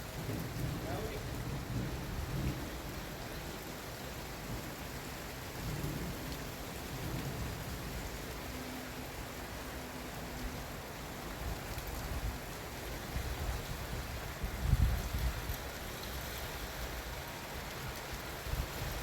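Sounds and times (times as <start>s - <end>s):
low thunder rumbling: 0.0s - 8.4s
heavy rain hissing: 0.0s - 19.0s.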